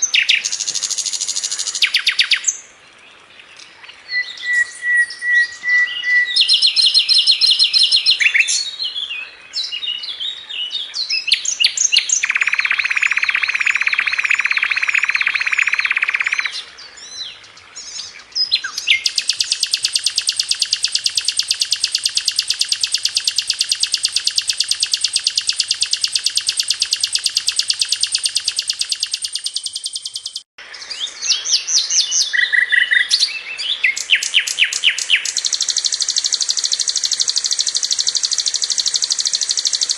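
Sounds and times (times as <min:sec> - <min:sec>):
flycatcher singing: 0:00.0 - 0:02.6, 0:04.1 - 0:10.0, 0:11.0 - 0:16.6, 0:17.9 - 0:39.9
fast even bird trill: 0:04.4 - 0:08.6, 0:12.0 - 0:16.6, 0:18.9 - 0:30.5, 0:33.8 - 0:39.9.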